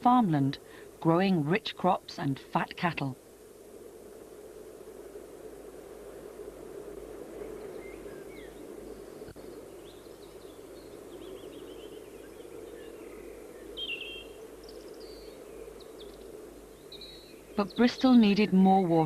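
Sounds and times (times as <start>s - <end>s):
low background hiss: 0.0s - 19.0s
small birds chirping: 7.4s - 19.0s.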